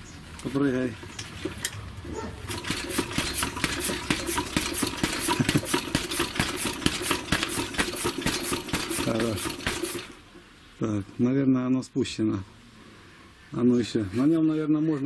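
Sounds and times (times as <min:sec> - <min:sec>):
motorcycle suspension clicking and knocking: 0:02.4 - 0:10.1.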